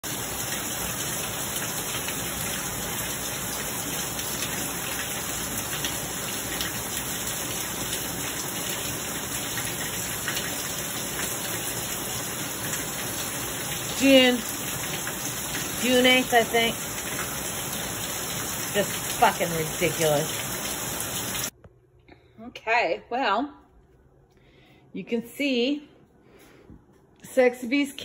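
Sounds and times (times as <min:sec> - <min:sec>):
heavy rain: 0:00.0 - 0:21.5
rain on plastic lids: 0:00.0 - 0:21.5.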